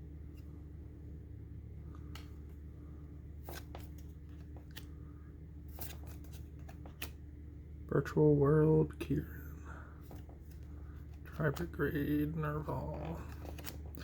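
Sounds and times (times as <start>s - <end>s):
steady low hum: 0.0s - 14.0s
cards clicking and rustling: 3.4s - 5.0s, 5.7s - 7.2s, 10.0s - 14.0s.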